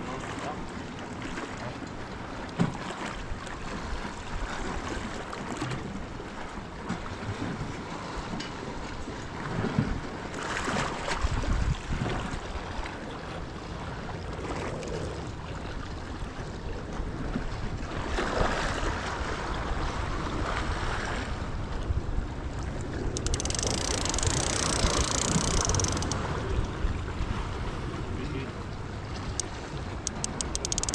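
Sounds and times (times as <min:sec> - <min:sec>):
wind on microphone: 0:11.1 - 0:12.6, 0:16.3 - 0:30.9.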